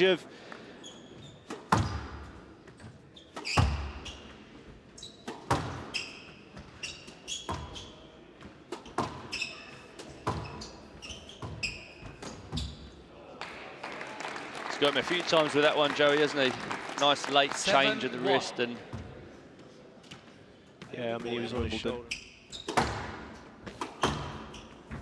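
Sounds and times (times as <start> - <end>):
shoes squeaking on court floor: 0.7 - 13.0, 18.8 - 25.0.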